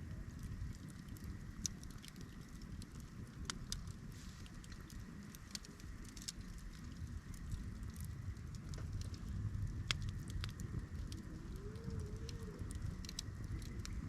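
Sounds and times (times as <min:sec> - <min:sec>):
campfire crackling and popping: 0:00.0 - 0:14.0
low steady rumble: 0:00.0 - 0:14.0.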